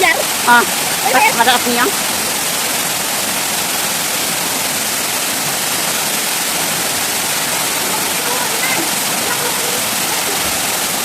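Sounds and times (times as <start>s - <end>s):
waterfall rushing water: 0.0s - 11.0s.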